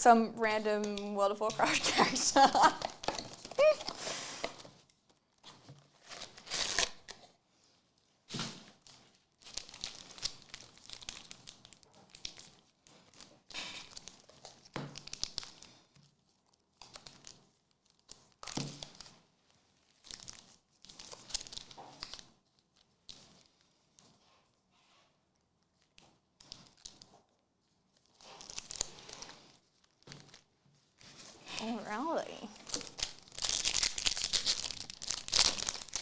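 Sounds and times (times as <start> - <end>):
cards being handled: 2.6 - 4.7
foil packs tearing and crinkling: 6.0 - 7.1, 32.6 - 36.0.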